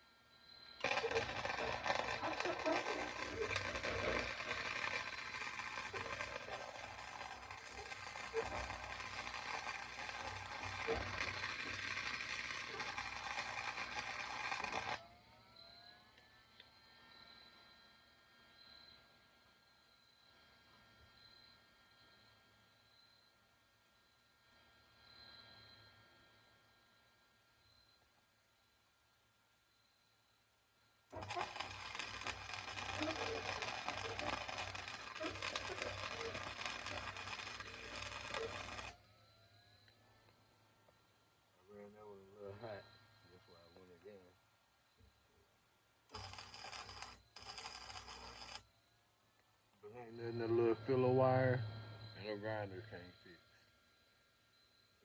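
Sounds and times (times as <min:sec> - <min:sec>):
faint hum: 0:00.0 - 0:55.0
welding arc crackling: 0:00.8 - 0:15.0, 0:31.1 - 0:39.0, 0:46.1 - 0:48.6.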